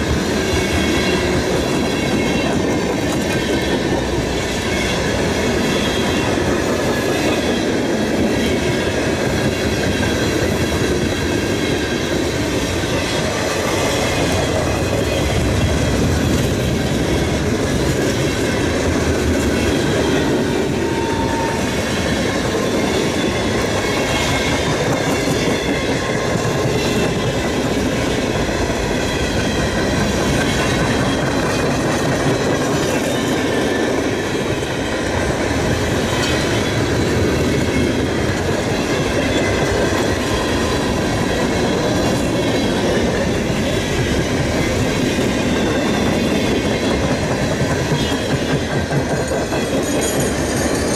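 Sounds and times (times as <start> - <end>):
train wheels on track: 0.0 - 50.9
high-pitched wheel squeal: 20.0 - 24.5.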